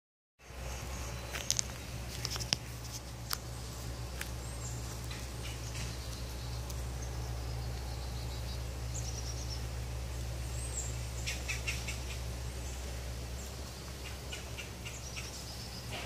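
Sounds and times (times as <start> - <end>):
small birds chirping: 0.4 - 16.0
steady low hum: 0.4 - 16.0.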